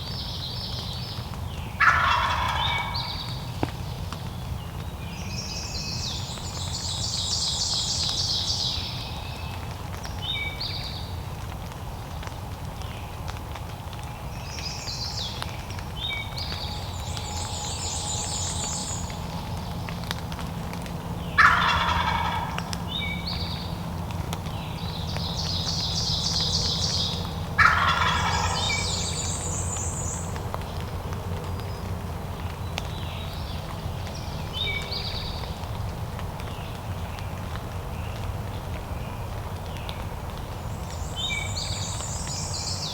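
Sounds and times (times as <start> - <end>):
turkey gobbling: 1.8 - 3.4, 21.4 - 23.2, 25.5 - 30.4
birds chirping trills: 24.7 - 30.4.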